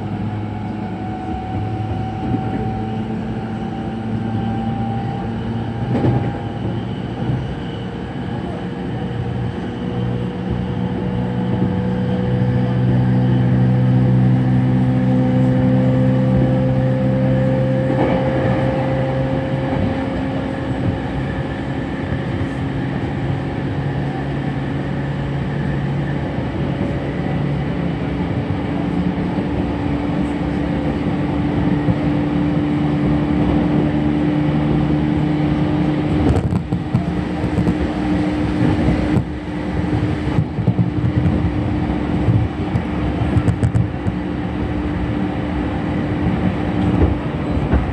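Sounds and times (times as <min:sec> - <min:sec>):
wheels rumbling on rail: 0:00.0 - 0:47.9.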